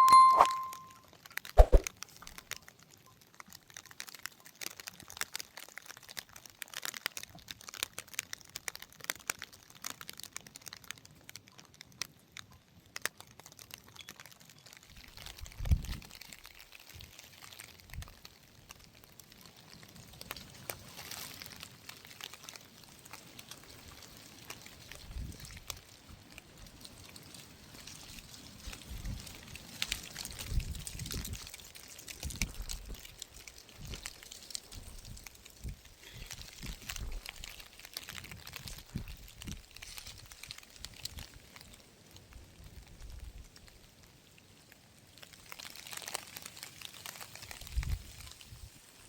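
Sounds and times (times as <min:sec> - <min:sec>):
irregular crinkling and crackling: 0:00.0 - 0:49.0.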